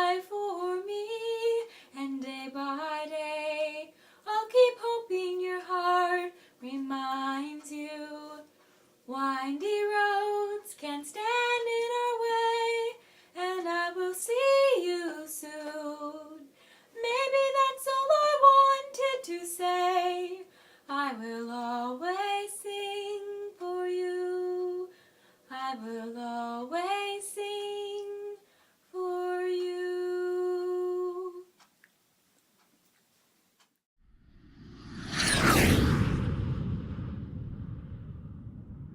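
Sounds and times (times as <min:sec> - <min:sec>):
woman singing unaccompanied: 0:00.0 - 0:08.5, 0:09.1 - 0:24.9, 0:25.5 - 0:28.4, 0:29.0 - 0:31.6.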